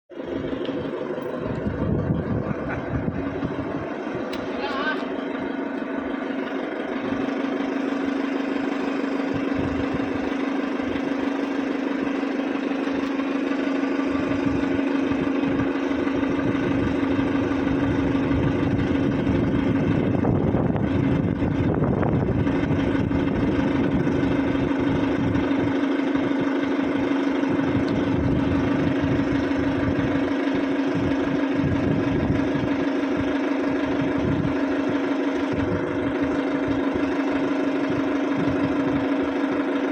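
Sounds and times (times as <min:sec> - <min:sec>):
motor humming: 0:00.1 - 0:39.9
low rumble: 0:00.2 - 0:07.3.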